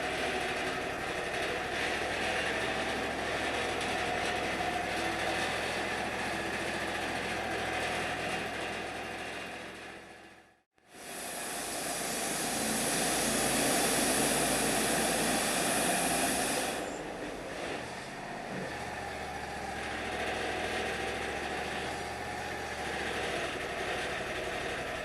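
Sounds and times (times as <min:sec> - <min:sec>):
sawmill engine running: 0:00.0 - 0:25.0
bandsaw blade cutting log: 0:11.1 - 0:17.0.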